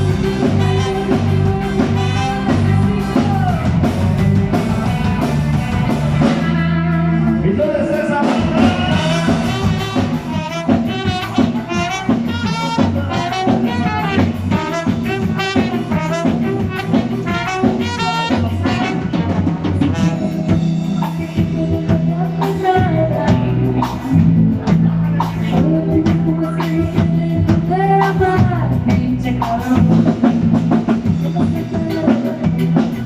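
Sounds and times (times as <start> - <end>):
horns playing melody: 0.0 - 3.4, 4.9 - 20.9
bass line: 0.0 - 33.0
drum kit: 0.0 - 33.0
person singing: 0.0 - 33.0.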